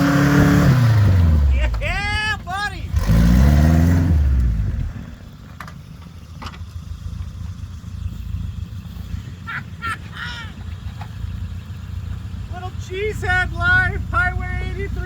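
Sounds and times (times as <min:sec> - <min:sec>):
truck engine rumbling: 0:00.0 - 0:15.0.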